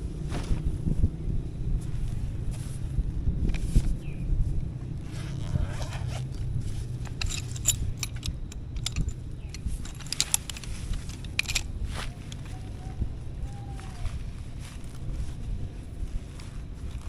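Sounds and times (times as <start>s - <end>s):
steady low rumble: 0.0s - 17.0s
small hard objects clinking: 6.6s - 12.8s.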